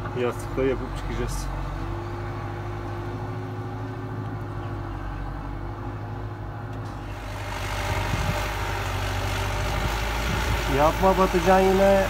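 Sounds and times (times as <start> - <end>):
tractor diesel engine revving: 6.9 - 12.0.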